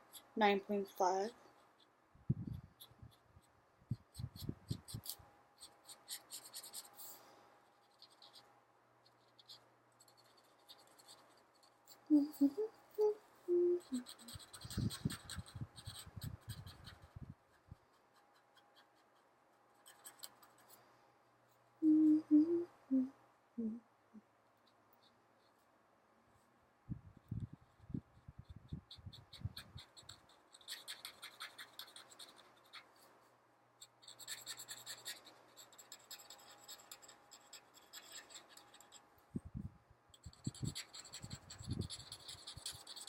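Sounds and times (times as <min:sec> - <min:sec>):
marker scratching on paper: 0:02.5 - 0:07.2, 0:07.8 - 0:12.0, 0:13.8 - 0:19.2, 0:19.8 - 0:20.8, 0:27.5 - 0:33.1, 0:33.8 - 0:39.0, 0:40.2 - 0:43.0
person humming: 0:12.1 - 0:14.3, 0:21.8 - 0:23.8.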